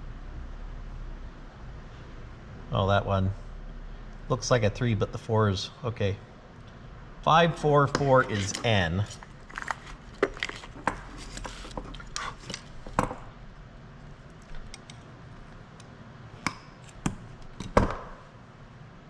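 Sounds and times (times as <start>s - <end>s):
handling clicks of wires: 14.2s - 18.0s.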